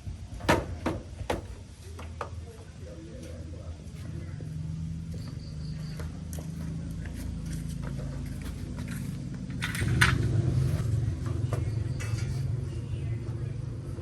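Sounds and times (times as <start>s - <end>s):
car engine running: 4.2s - 14.0s.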